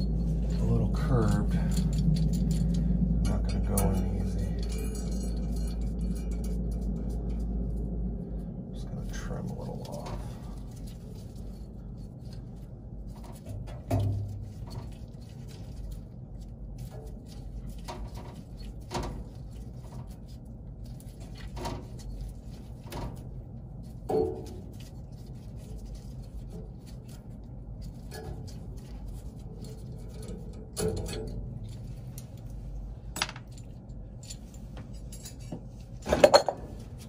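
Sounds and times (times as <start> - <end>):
metal tools clinking: 0.0 - 7.4, 33.2 - 36.6
metal clatter: 0.0 - 7.9, 9.8 - 37.0.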